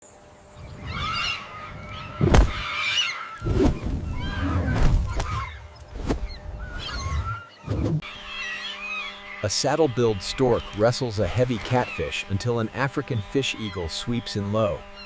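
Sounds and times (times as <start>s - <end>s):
birds honking: 0.4s - 15.0s
sharp thump: 2.2s - 2.6s.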